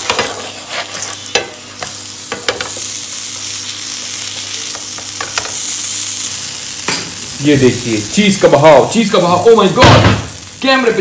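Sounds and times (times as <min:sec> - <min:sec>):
wooden spatula scraping a pan: 0:00.0 - 0:01.5
flatbread sizzling on a griddle: 0:00.0 - 0:11.0.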